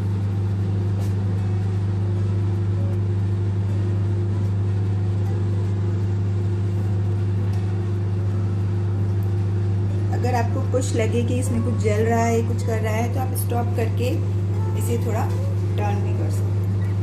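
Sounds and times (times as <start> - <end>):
microwave oven humming: 0.0 - 17.0.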